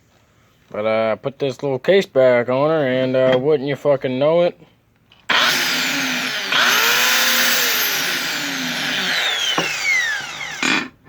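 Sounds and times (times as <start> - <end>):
grinder whining: 5.3 - 11.0.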